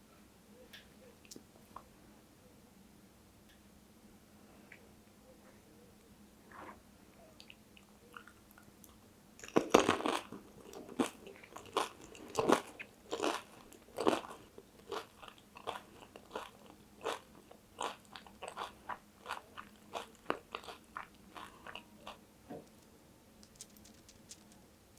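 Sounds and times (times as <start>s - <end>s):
chewing: 7.4s - 22.2s.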